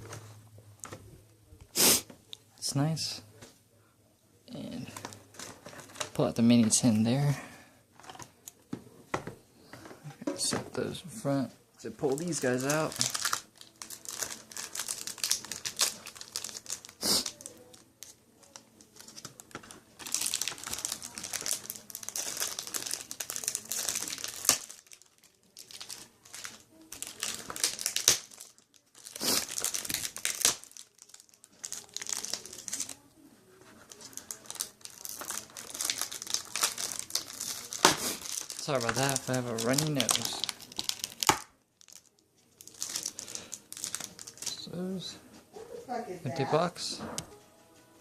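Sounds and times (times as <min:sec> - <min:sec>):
plastic and cardboard packaging crinkling: 0:04.6 - 0:07.3, 0:11.8 - 0:45.2.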